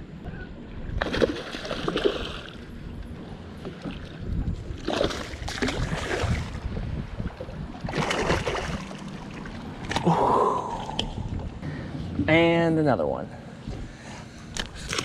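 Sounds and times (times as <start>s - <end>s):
wind rumble on microphone: 0.0s - 12.4s
water splashing: 1.0s - 2.7s, 3.6s - 11.2s.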